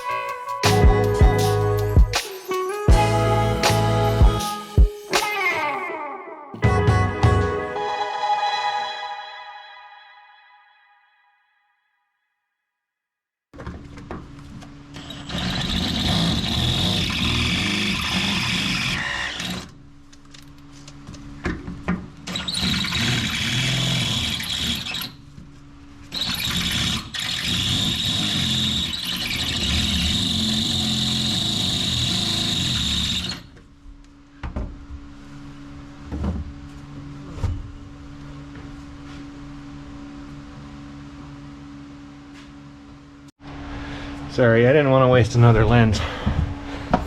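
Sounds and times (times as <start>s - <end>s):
power tool squealing on metal: 15.0s - 19.7s, 22.3s - 25.2s, 26.1s - 33.6s.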